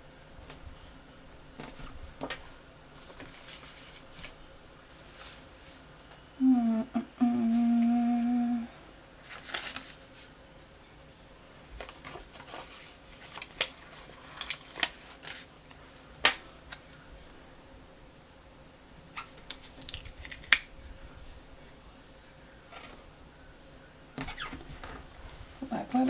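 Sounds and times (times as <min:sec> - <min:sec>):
paper and stickers rustling: 0:01.6 - 0:06.2, 0:09.2 - 0:10.4, 0:11.6 - 0:15.9, 0:24.2 - 0:26.0.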